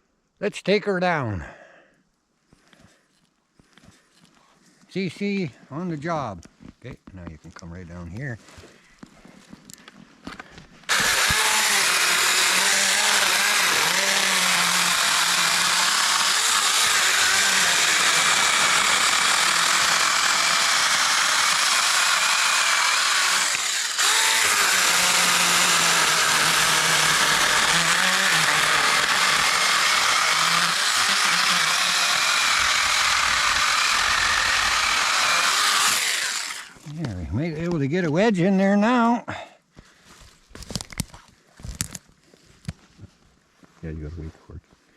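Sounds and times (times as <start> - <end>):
electric chainsaw cutting wood: 10.9 - 37.0.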